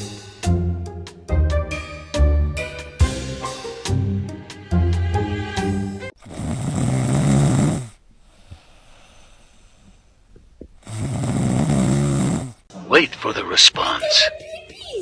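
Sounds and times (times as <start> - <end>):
marimba-like music: 0.0 - 6.1.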